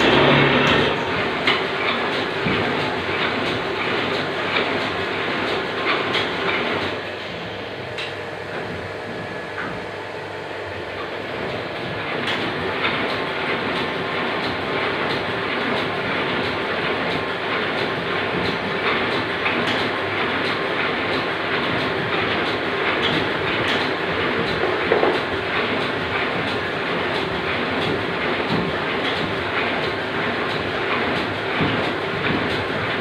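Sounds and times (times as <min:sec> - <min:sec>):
mechanical clatter: 0:00.0 - 0:07.0.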